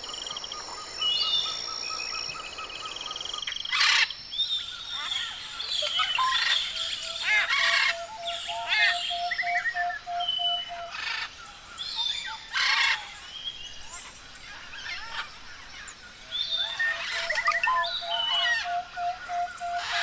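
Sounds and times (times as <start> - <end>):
bird chirps and trills: 0.3 - 20.0
string of whistled bird notes: 5.6 - 12.8, 16.3 - 20.0
harsh rasping bird calls: 16.6 - 20.0.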